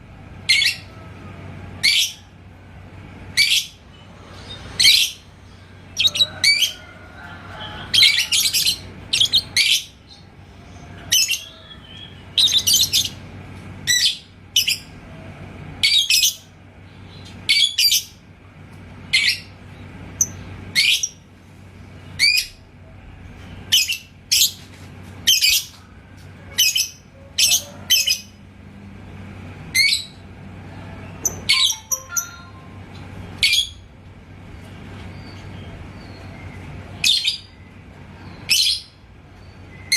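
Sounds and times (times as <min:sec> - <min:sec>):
lovebird shrill chirps: 0:06.0 - 0:06.6, 0:08.1 - 0:09.9.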